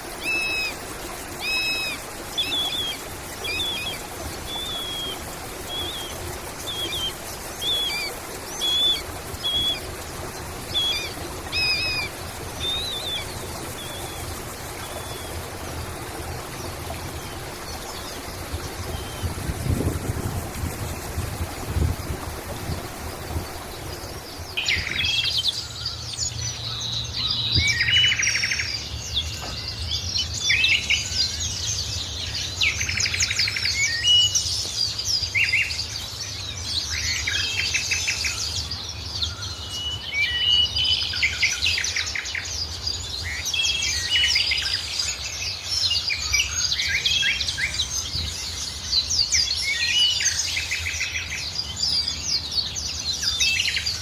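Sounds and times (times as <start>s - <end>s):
birds singing and chirping: 0.0s - 54.0s.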